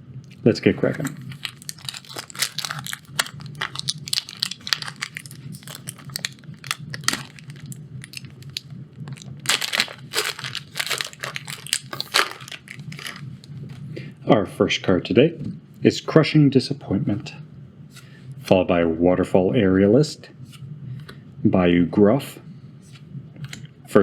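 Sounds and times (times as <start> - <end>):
plastic wrapper crinkling: 0.3 - 13.6.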